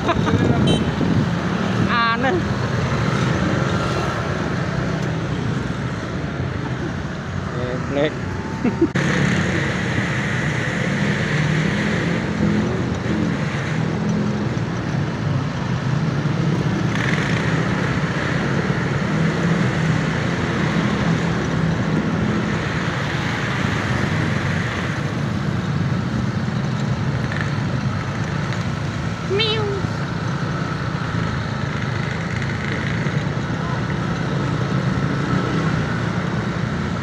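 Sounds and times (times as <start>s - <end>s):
wind and tyre rush: 0.0s - 37.0s
motorbike engine hum: 12.0s - 37.0s.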